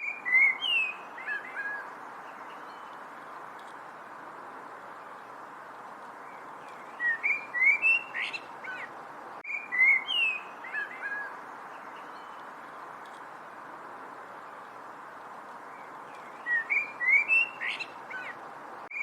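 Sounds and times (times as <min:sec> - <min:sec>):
songbird whistling: 0:00.0 - 0:01.8, 0:06.9 - 0:08.9, 0:09.5 - 0:11.3, 0:16.3 - 0:19.0
steady background hiss: 0:00.0 - 0:19.0.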